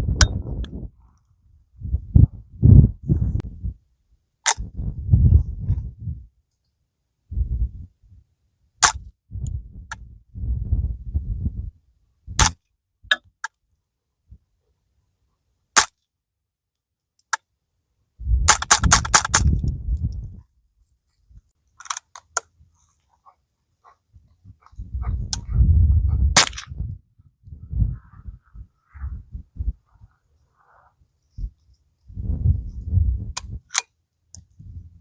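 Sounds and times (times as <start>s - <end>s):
wind buffeting microphone: 0.0s - 3.8s, 4.6s - 6.3s, 7.3s - 8.2s, 9.0s - 12.5s, 18.2s - 20.5s, 23.8s - 33.7s, 34.4s - 35.0s
suppressed rifle shots: 12.4s - 12.6s.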